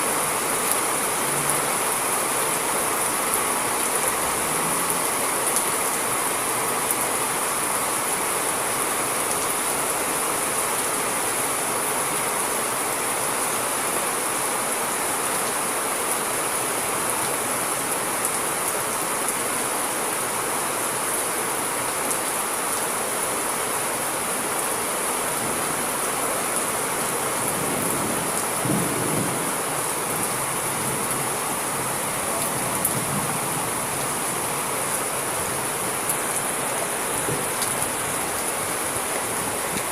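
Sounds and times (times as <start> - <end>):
steady rain falling: 0.0 - 39.9
low rumble of thunder: 27.6 - 31.0.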